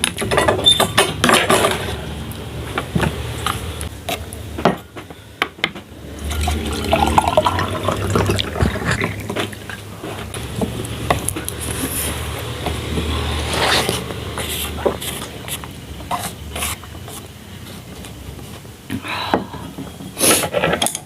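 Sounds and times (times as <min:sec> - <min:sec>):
water pouring into container: 0:06.3 - 0:09.6.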